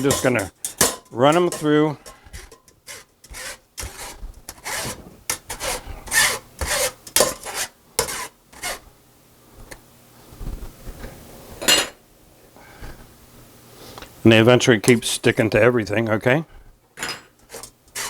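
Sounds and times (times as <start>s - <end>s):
tool scraping potatoes through sifter: 0.0s - 8.8s, 17.5s - 18.0s.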